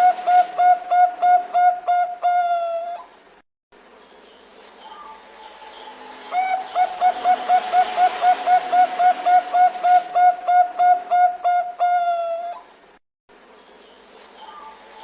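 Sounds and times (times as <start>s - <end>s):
dove cooing: 0.0s - 3.2s, 6.3s - 12.7s.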